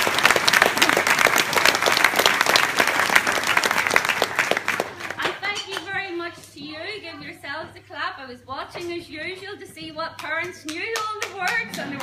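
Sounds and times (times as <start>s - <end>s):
audience applauding: 0.0s - 5.4s, 11.2s - 12.0s.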